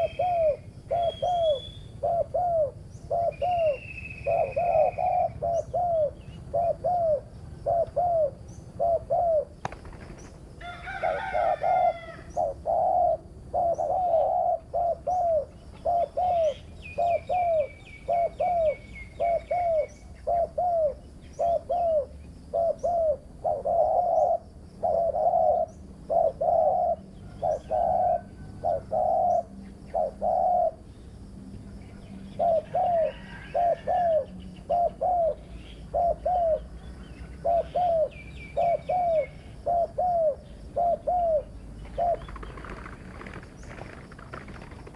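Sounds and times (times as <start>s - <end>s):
dove cooing: 0.0s - 30.9s, 32.0s - 44.9s
small birds chirping: 34.0s - 44.9s.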